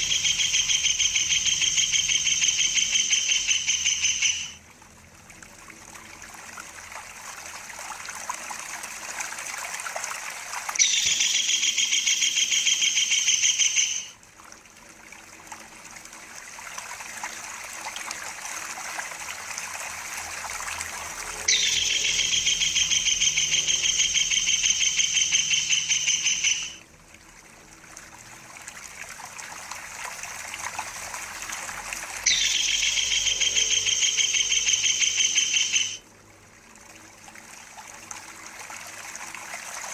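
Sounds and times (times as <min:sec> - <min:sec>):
kingfisher trilling: 0:00.0 - 0:04.6, 0:10.8 - 0:14.2, 0:21.4 - 0:26.8, 0:32.2 - 0:36.0
trickling water: 0:00.0 - 0:39.9.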